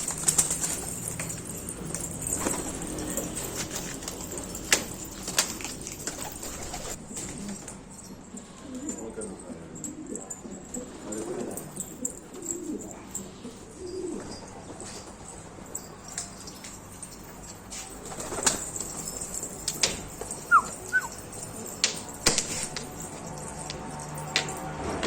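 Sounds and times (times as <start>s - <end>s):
pigeons flapping wings: 0.0s - 7.4s, 18.0s - 24.6s
pigeon cooing: 2.3s - 7.0s, 8.4s - 14.5s, 20.3s - 22.0s
high falling chirps: 20.4s - 21.2s.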